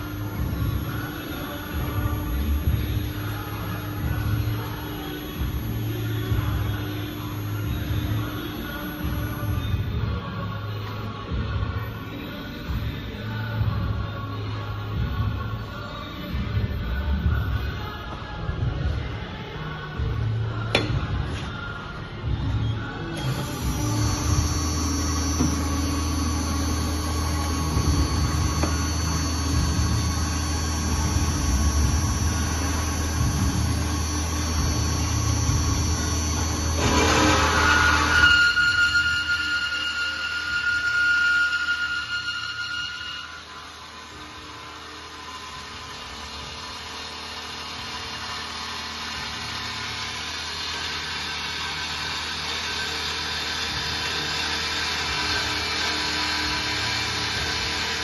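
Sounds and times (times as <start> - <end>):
bandsaw running: 23.2 - 58.0.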